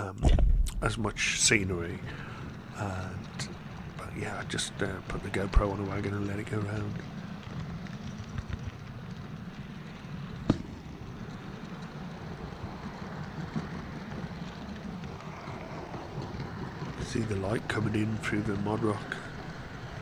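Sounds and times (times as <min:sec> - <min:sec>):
model train wheels rumbling on rail: 0:00.0 - 0:20.0.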